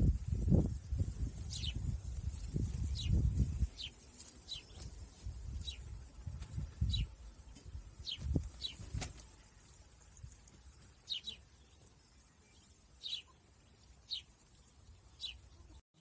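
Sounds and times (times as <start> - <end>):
small bird chirping: 1.5 - 5.9, 6.8 - 7.1, 8.0 - 9.0, 11.0 - 16.0.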